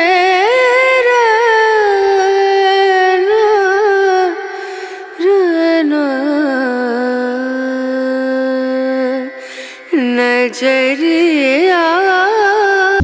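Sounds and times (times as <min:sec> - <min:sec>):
solo voice singing: 0:00.0 - 0:13.0.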